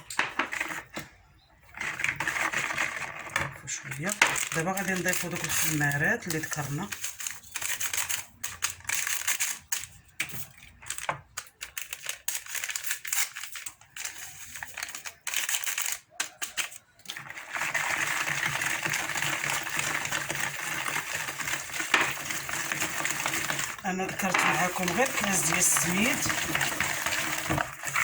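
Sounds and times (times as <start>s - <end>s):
utensil scraping mixing bowl: 1.7s - 8.8s, 16.4s - 28.0s.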